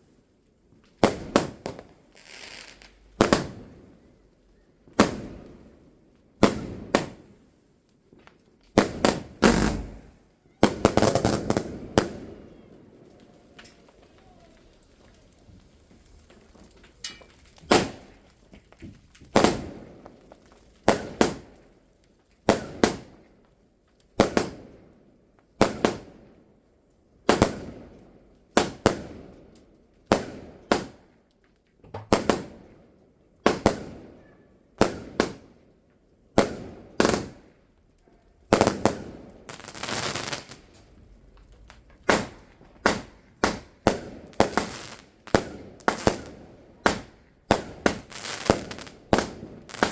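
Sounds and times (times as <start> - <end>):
fireworks crackle: 0.0 - 26.4, 27.0 - 32.8, 33.4 - 49.9
fireworks bangs echoing: 1.0 - 4.0, 4.9 - 5.7, 6.4 - 7.4, 8.2 - 18.2, 19.3 - 21.6, 24.2 - 24.7, 27.3 - 27.9, 30.1 - 31.0, 31.9 - 32.8, 33.4 - 34.2, 34.8 - 35.6, 36.4 - 37.6, 38.5 - 41.1, 41.7 - 49.9.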